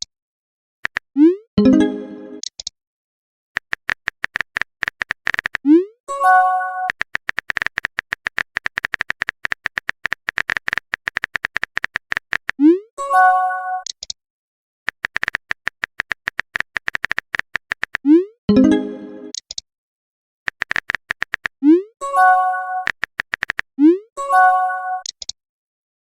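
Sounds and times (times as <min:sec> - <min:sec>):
typing clicks: 0:00.8 - 0:01.1, 0:03.6 - 0:05.7, 0:06.8 - 0:12.6, 0:14.9 - 0:18.1, 0:20.5 - 0:21.6, 0:22.7 - 0:23.7, 0:25.0 - 0:25.4.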